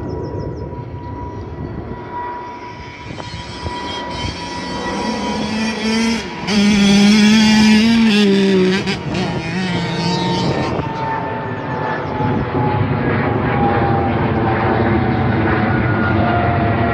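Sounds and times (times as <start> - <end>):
dirt bike engine revving: 3.1 - 11.2.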